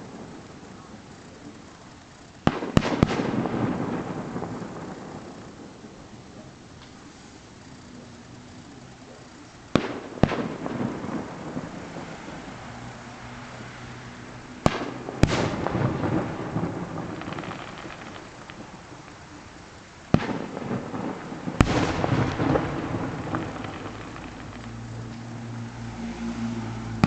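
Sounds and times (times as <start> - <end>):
distant fireworks bangs: 0.0 - 27.0
rolling rumble and crackle: 0.0 - 27.0.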